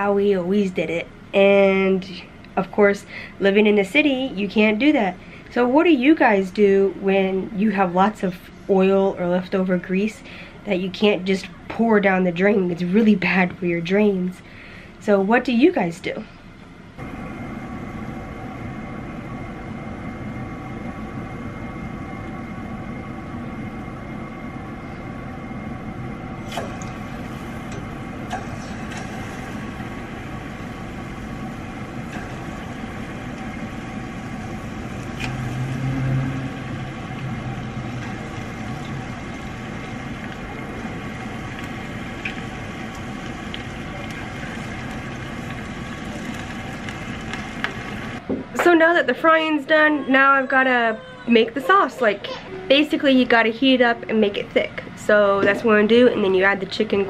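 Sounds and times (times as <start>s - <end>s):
steady hum: 0.0s - 57.0s
chicken deep-frying in oil: 26.5s - 48.2s.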